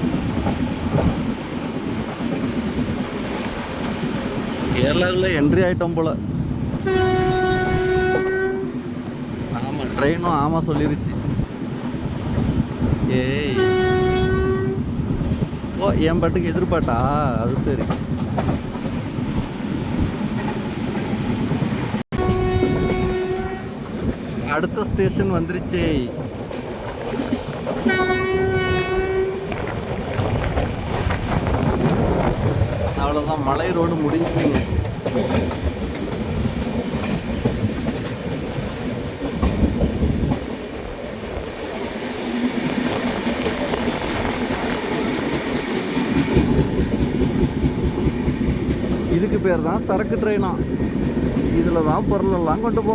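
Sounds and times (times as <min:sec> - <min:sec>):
train wheels rumbling on rail: 0:00.0 - 0:52.9
locomotive horn blast: 0:06.8 - 0:08.8, 0:13.5 - 0:14.9, 0:22.1 - 0:23.8, 0:27.9 - 0:29.5.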